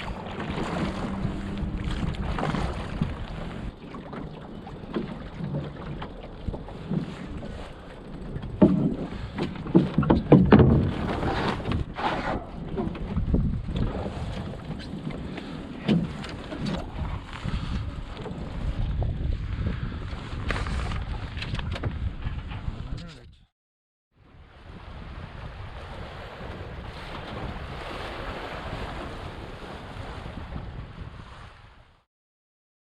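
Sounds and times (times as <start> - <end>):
rushing water: 0.0 - 11.5
water splashing against boat hull: 0.0 - 22.1, 25.1 - 30.8
wind buffeting microphone: 0.0 - 23.4, 24.4 - 31.9.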